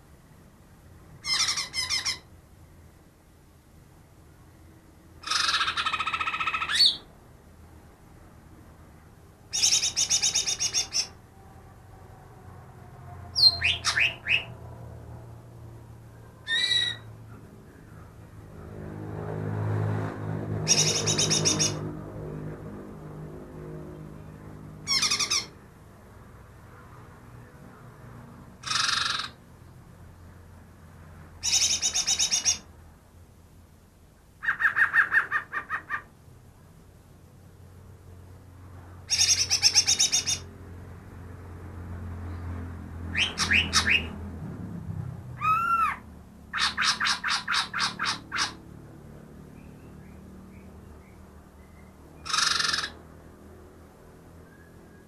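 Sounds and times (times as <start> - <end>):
bird chattering: 1.2 - 2.3, 5.2 - 7.1, 9.5 - 11.2, 13.4 - 14.5, 20.7 - 21.8, 24.9 - 25.6, 28.6 - 29.4, 31.4 - 32.7, 34.4 - 36.1, 39.1 - 40.5, 43.1 - 44.1, 45.4 - 48.6, 52.2 - 53.0.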